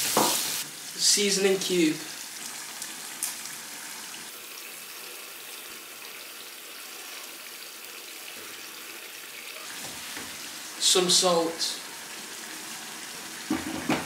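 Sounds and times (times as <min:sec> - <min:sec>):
stew frying in a pot: 0:00.0 - 0:14.0.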